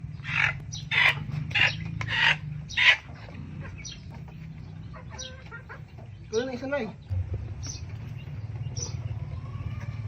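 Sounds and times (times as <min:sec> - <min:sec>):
chicken squawking: 0:00.2 - 0:04.2, 0:04.8 - 0:06.1.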